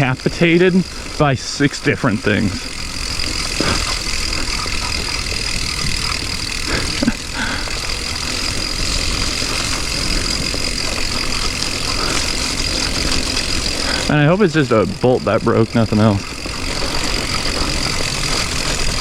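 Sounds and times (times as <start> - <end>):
steady high-pitched whine: 0.0 - 19.0.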